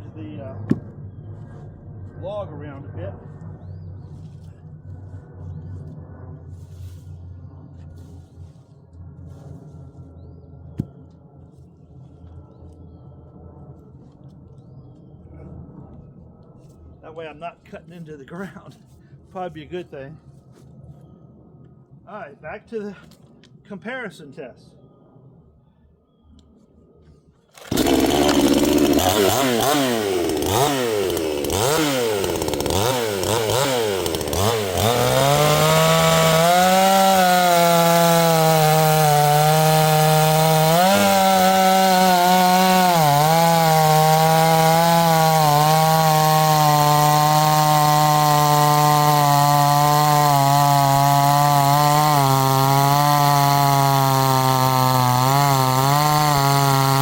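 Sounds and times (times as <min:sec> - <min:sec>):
chainsaw revving and cutting: 0:27.6 - 0:57.0.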